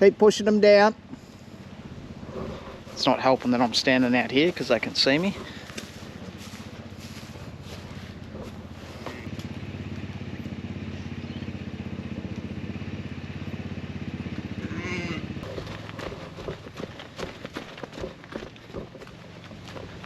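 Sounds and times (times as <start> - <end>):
small engine running: 0.3 - 20.0
sheep bleating: 14.6 - 15.3.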